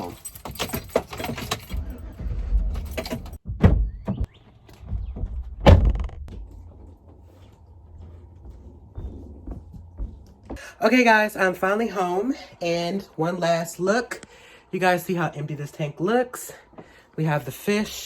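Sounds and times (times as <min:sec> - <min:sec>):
sharp loud thumps: 0:03.4 - 0:06.4.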